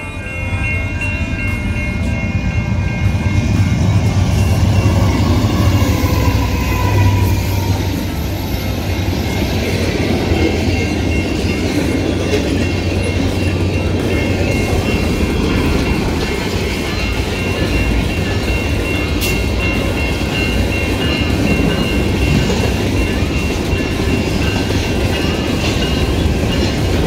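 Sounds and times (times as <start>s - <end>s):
background music: 0.0s - 27.0s
train passing rumble: 0.0s - 27.0s.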